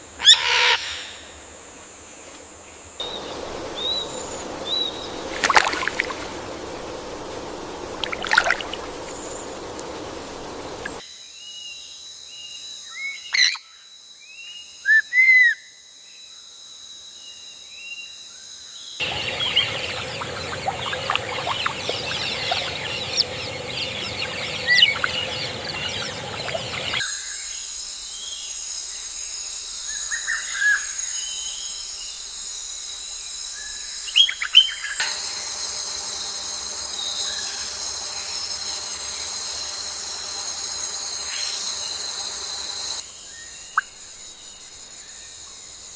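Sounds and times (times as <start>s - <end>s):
high insect trill: 2.8s - 13.0s, 16.5s - 45.9s
rushing noise: 3.0s - 11.0s
wild birds chirping: 3.0s - 11.0s, 19.0s - 27.6s.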